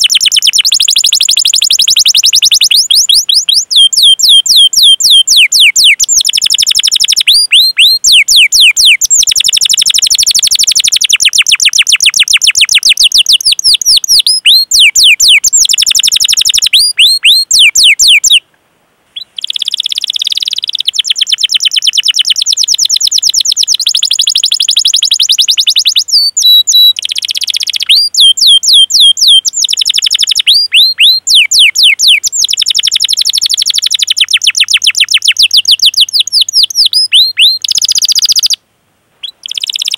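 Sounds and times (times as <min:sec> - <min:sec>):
canary singing rapid chirps: 0:00.0 - 0:18.4, 0:19.2 - 0:38.6, 0:39.2 - 0:39.9.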